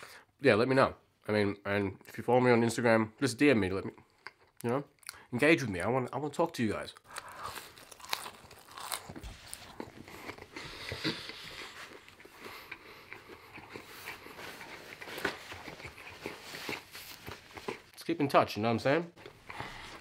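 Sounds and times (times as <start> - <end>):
chewing food: 7.0 - 18.0.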